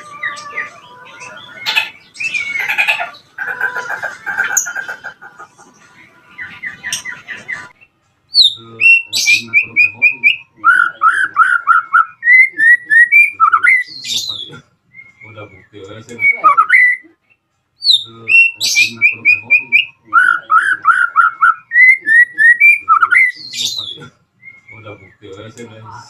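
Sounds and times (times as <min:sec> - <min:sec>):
songbird singing whistles: 0:01.4 - 0:03.0, 0:08.3 - 0:15.4, 0:16.1 - 0:17.1, 0:17.8 - 0:24.9.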